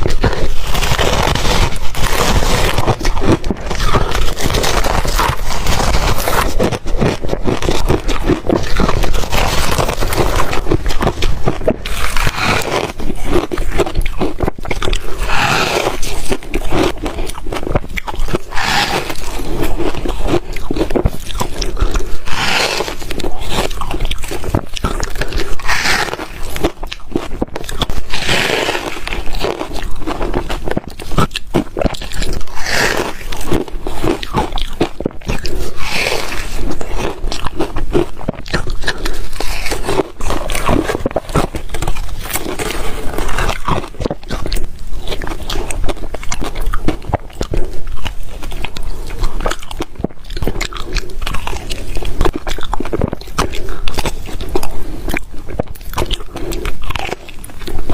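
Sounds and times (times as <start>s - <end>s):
ice crunching between teeth: 0.0s - 57.9s.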